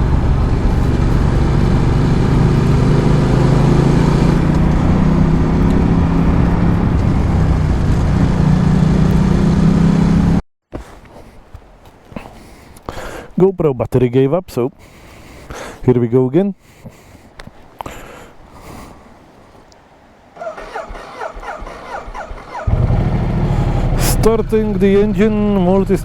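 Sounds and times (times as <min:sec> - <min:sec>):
motorcycle engine running: 0:00.0 - 0:10.4, 0:20.5 - 0:26.0
road and wind noise: 0:00.0 - 0:10.4, 0:17.2 - 0:26.0.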